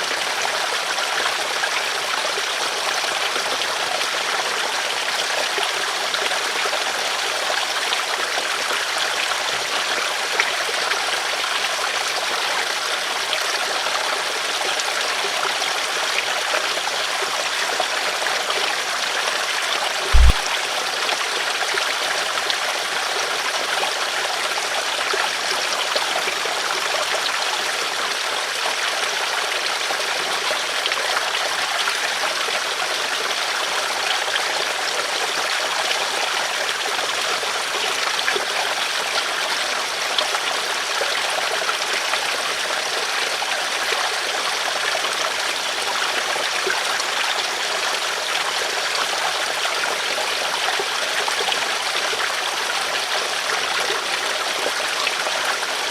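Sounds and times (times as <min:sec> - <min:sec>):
river water flowing over stones: 0:20.1 - 0:20.5.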